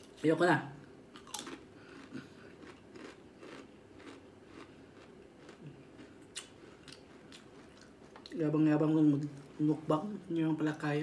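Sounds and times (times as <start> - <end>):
chewing crunchy chips: 1.1 - 8.4.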